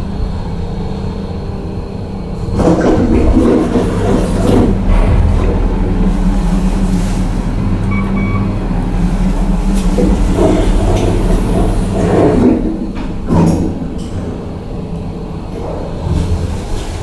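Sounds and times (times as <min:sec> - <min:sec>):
elevator mechanical hum: 0:00.0 - 0:17.0
short beep: 0:07.9 - 0:08.6.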